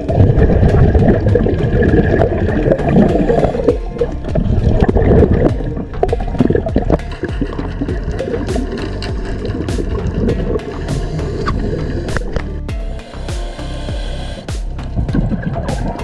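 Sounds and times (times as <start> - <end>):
sea water sloshing and gurgling: 0.0 - 12.4.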